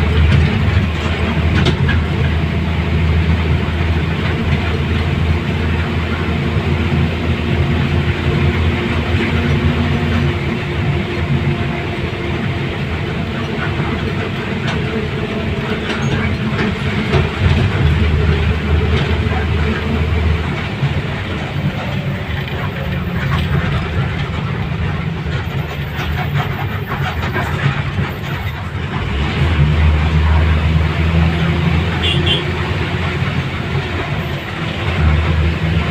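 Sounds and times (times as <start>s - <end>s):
vehicle travel rumble: 0.0s - 35.9s.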